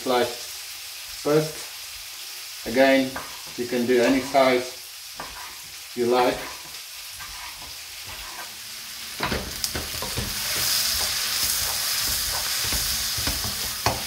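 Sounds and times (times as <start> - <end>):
vegetables sizzling in frying pan: 0.0 - 14.0
wooden spoon stirring and knocking: 9.3 - 14.0.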